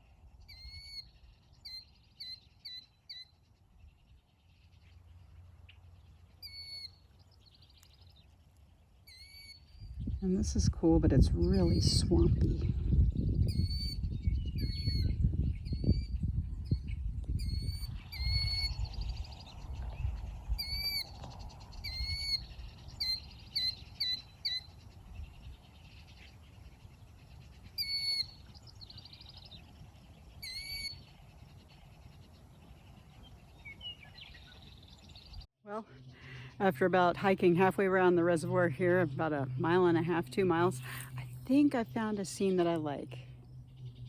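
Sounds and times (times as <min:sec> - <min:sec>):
bird calling in hooked notes: 0:06.4 - 0:07.0, 0:27.8 - 0:29.2.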